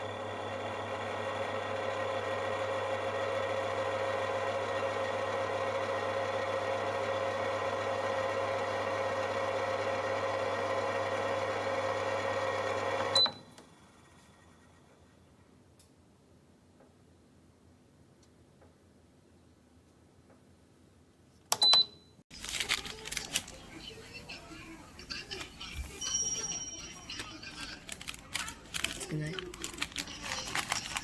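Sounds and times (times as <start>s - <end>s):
toaster oven humming: 0.0s - 15.4s, 22.3s - 31.0s.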